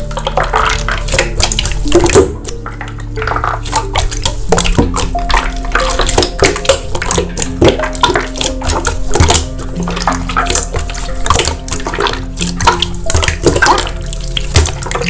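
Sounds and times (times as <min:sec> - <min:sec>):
background music with held chords: 0:00.0 - 0:15.0
slime squished by hand: 0:00.0 - 0:15.0.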